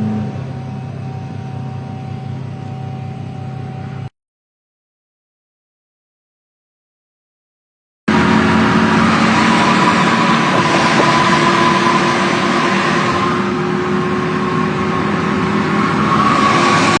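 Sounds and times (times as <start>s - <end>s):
faint whine: 0.0s - 4.1s
truck engine and road noise: 0.0s - 4.1s, 8.1s - 17.0s.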